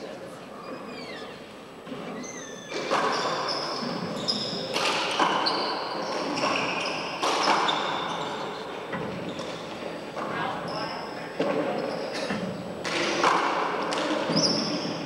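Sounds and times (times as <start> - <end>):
sneakers squeaking on floor: 0.5 - 15.0
ball smacking court walls: 11.4 - 14.7.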